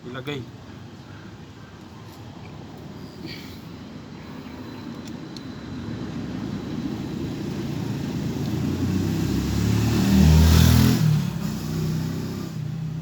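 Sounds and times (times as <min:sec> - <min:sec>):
vehicle passing: 0:05.9 - 0:13.0.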